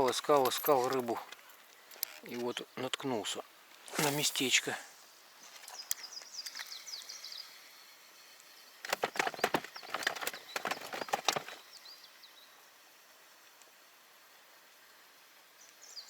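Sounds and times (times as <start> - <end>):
small bird chirping: 5.3 - 12.6
sharp clattering knocks: 8.8 - 11.6.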